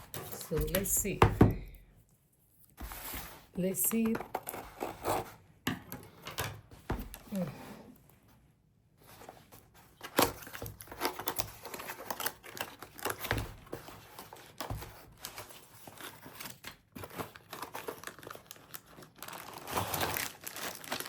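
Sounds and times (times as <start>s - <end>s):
plastic packaging crinkling and tearing: 9.9s - 21.0s.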